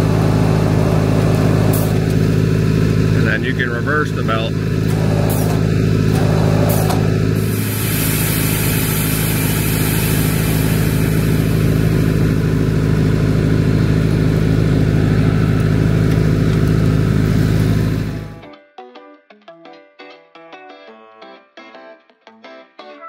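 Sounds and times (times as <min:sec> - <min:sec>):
diesel truck engine drone: 0:00.0 - 0:18.4
hiss: 0:07.4 - 0:12.0.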